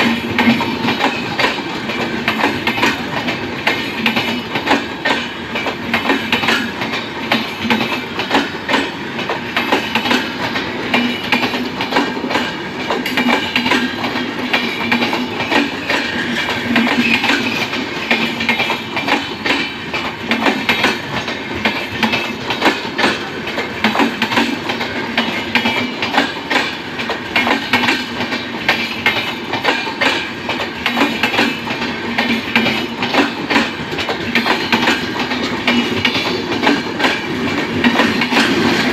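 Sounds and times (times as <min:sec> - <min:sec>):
train rumble: 0:00.0 - 0:38.9
train wheels clattering over rail joints: 0:00.0 - 0:38.9.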